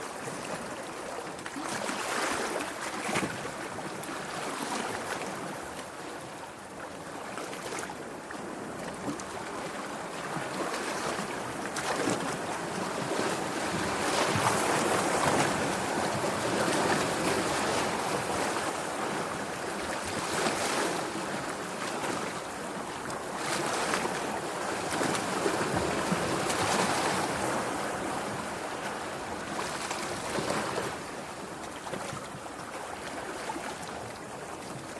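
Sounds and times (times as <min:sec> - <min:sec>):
sea waves breaking: 0:07.4 - 0:34.9.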